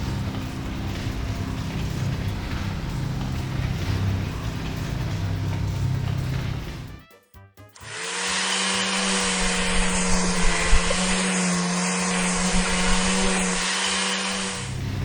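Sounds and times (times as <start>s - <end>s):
motor whirring with rushing air: 7.8s - 15.0s.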